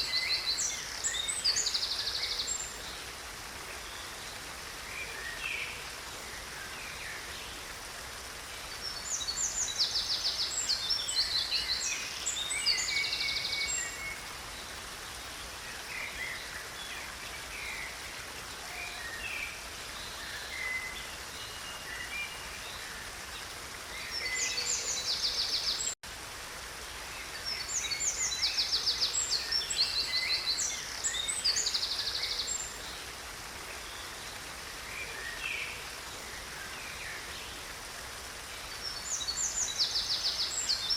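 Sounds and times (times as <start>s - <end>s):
stream flowing: 0.0s - 40.9s
songbird trills and chirps: 8.5s - 22.9s.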